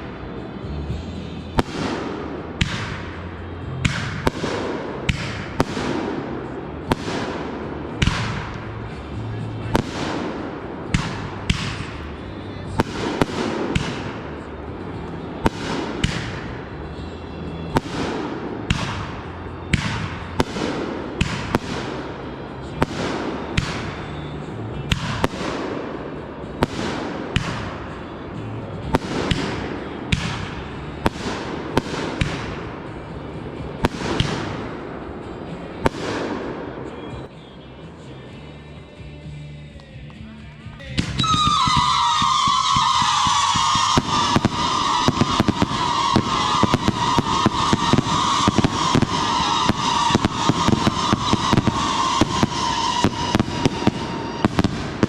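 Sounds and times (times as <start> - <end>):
fireworks banging: 0.0 - 37.3, 40.8 - 55.0.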